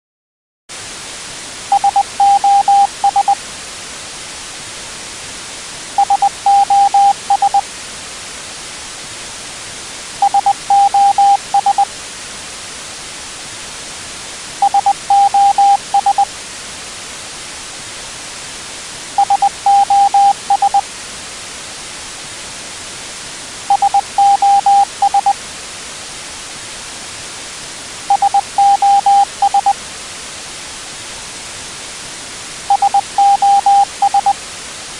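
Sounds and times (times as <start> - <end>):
morse code beeps: 1.7 - 3.4, 6.0 - 7.6, 10.2 - 11.9, 14.6 - 16.3, 19.2 - 20.8, 23.7 - 25.4, 28.1 - 29.8, 32.7 - 34.4.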